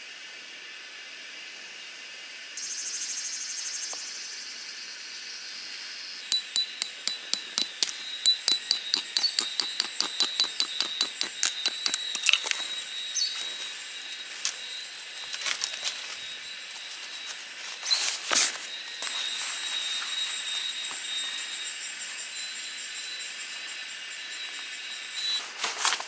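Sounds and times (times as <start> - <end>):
faint steady high tone: 2.6 - 26.0
sharp metallic taps: 6.3 - 12.3
handling and rustling noises: 11.4 - 21.5, 25.3 - 26.0.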